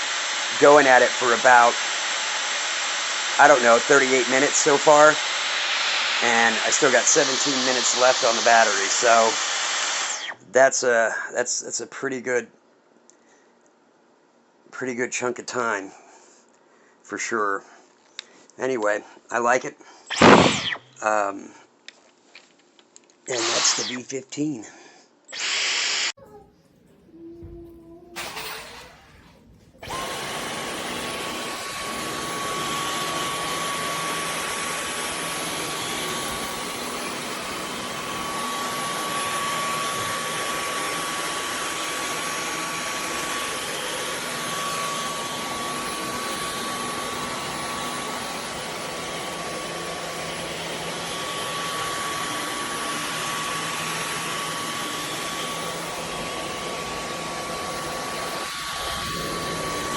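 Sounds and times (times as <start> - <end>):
vacuum cleaner running: 0.0 - 10.4, 23.3 - 24.0, 25.3 - 26.3, 27.1 - 59.9.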